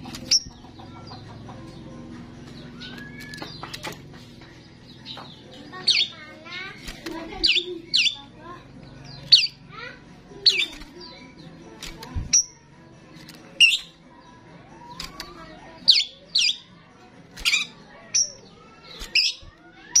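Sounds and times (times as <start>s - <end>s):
starling clicks: 2.5s - 4.2s, 10.4s - 12.5s, 13.1s - 13.9s, 14.8s - 16.4s, 17.3s - 19.6s
starling whistles and squawks: 17.4s - 20.0s.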